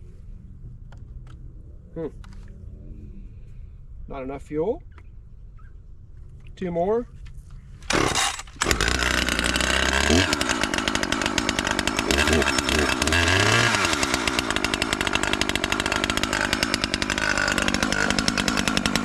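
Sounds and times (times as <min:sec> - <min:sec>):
chainsaw engine running: 0:07.8 - 0:19.0.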